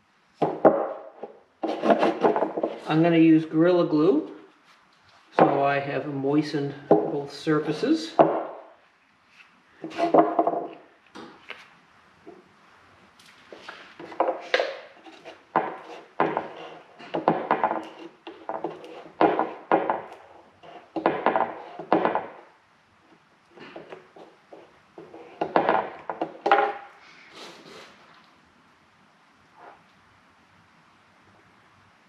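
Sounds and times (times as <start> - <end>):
wooden pieces knocking together: 0.4 - 2.9, 8.1 - 8.7, 9.8 - 11.4, 13.9 - 22.5, 23.5 - 26.9.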